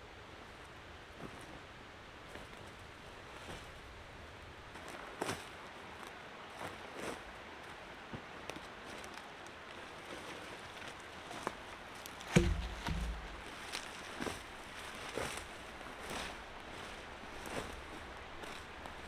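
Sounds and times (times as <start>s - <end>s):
heavy thump: 12.3s - 13.5s
footsteps crunching on forest floor: 12.3s - 14.0s.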